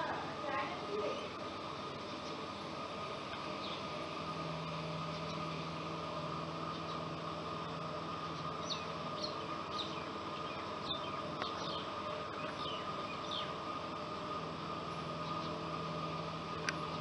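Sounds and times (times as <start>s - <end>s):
steady hum and hiss: 0.0s - 17.0s
small bird chirping: 8.3s - 13.6s, 15.2s - 15.7s.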